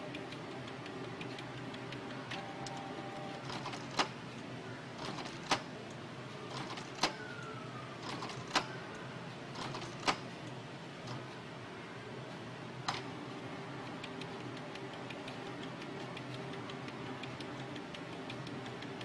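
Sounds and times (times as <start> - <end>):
sharp printer clicks: 0.0 - 4.3, 5.0 - 5.7, 6.5 - 8.9, 9.5 - 10.3, 12.9 - 19.0
inkjet printer mechanism running: 0.0 - 4.4, 5.0 - 5.8, 6.4 - 10.3, 12.8 - 19.0.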